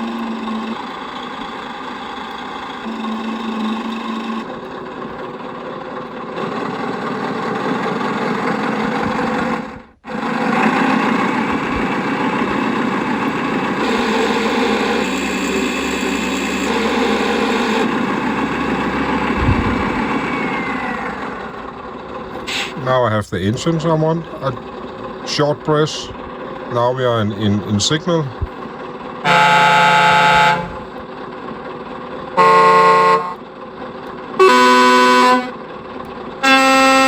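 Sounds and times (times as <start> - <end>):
simulated truck diesel engine: 0.0 - 37.0.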